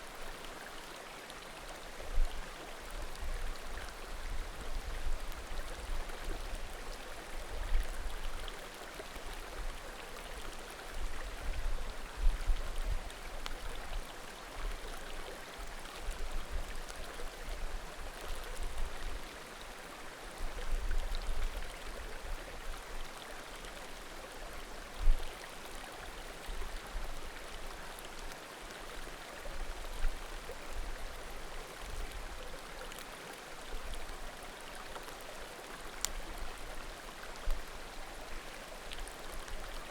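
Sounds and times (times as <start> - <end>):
creek babbling: 21.6 - 39.9.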